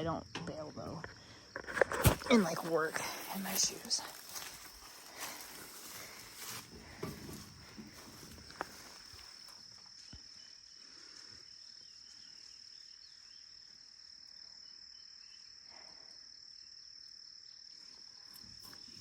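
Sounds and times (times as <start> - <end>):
light field noise: 0.0 - 12.6
insects trilling: 0.0 - 19.0.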